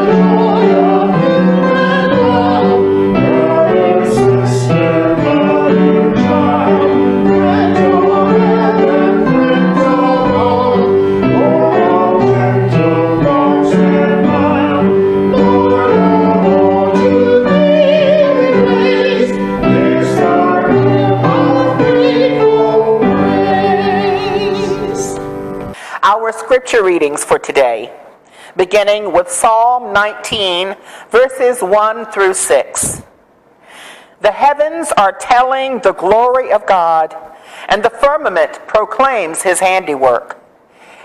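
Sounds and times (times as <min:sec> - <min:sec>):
choir singing a hymn: 0:00.0 - 0:25.5
keyboard chords: 0:00.0 - 0:25.8.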